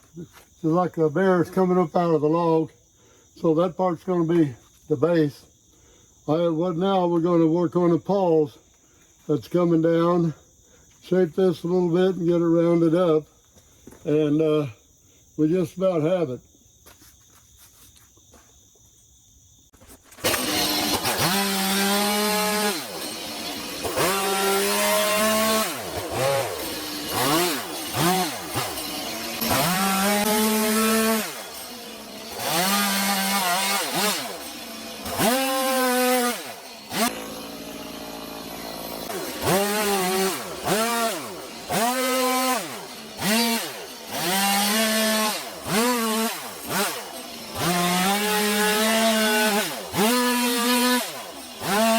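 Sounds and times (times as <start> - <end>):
insects chirping: 0.0 - 20.2
chainsaw cutting wood: 19.8 - 51.9.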